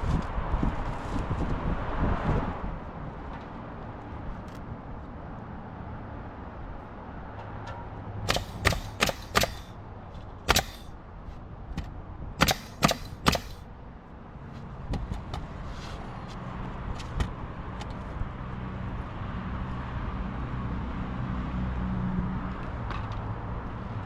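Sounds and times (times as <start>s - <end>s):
hammer blows on roof: 8.3s - 9.7s, 10.5s - 10.9s, 11.8s - 13.6s.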